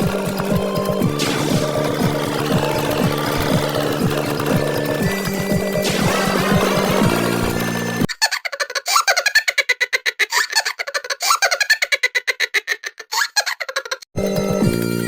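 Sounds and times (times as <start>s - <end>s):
cartoon giggle sound effect: 8.1s - 14.1s.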